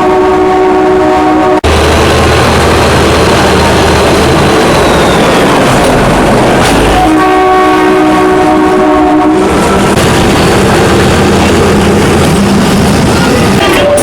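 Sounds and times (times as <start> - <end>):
train horn chord: 0.0 - 1.7, 6.8 - 9.6
train running noise: 0.0 - 14.0.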